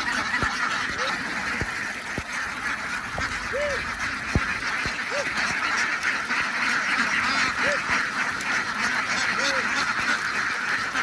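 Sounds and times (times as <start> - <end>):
ducks quacking: 0.0 - 11.0
sharp knocks: 4.2 - 5.0.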